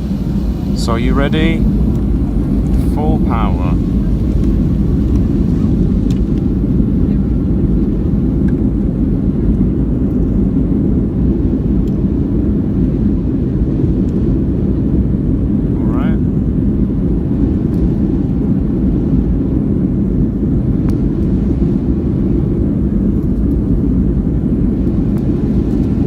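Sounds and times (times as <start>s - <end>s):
jet engines roaring in cabin: 0.0s - 26.0s.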